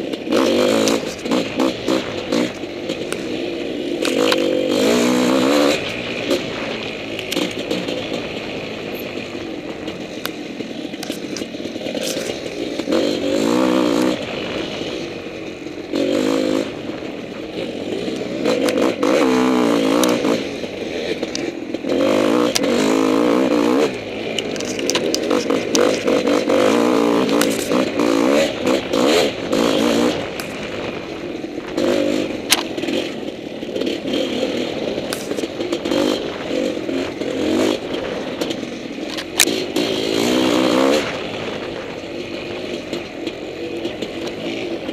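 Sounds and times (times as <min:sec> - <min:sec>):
dirt bike engine revving: 0:00.0 - 0:44.9
clicks scrapes and clatter: 0:10.1 - 0:12.9, 0:24.3 - 0:26.4, 0:35.0 - 0:36.2.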